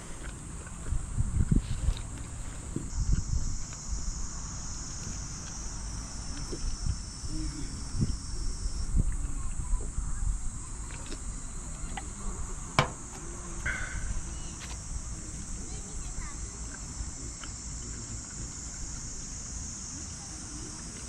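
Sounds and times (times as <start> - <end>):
insects trilling: 0.0 - 21.0
small knocks: 12.8 - 13.3.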